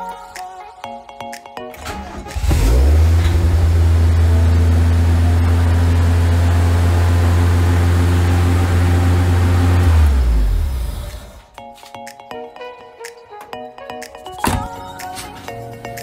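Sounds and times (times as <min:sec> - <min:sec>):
car engine high idle: 0:02.4 - 0:11.1.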